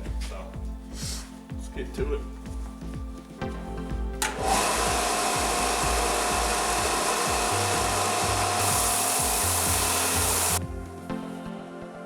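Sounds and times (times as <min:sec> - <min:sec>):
belt grinder grinding steel: 0:04.2 - 0:10.6.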